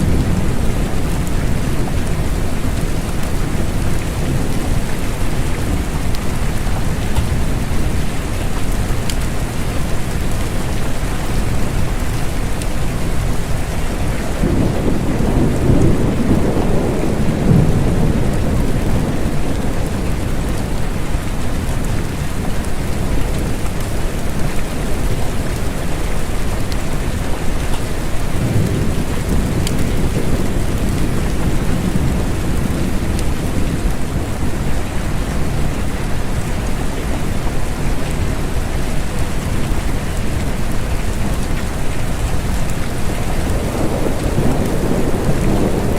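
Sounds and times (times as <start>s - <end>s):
low rolls of thunder: 0.0s - 8.0s, 13.4s - 21.9s, 28.2s - 35.7s, 42.4s - 45.9s
steady rain falling: 0.0s - 45.9s.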